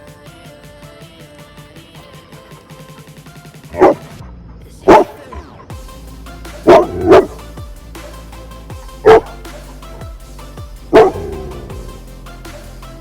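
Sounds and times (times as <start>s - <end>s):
background music: 0.0s - 13.0s
dog barking: 3.7s - 4.1s, 4.9s - 5.2s, 6.6s - 7.4s, 9.0s - 9.4s, 10.9s - 11.8s.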